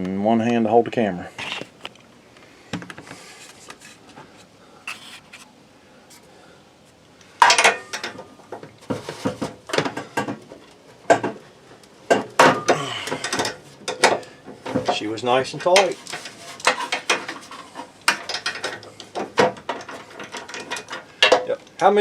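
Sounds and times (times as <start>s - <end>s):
sharp metallic clicks and rattles: 12.1s - 21.9s
metal tools clinking and scraping: 12.4s - 21.6s.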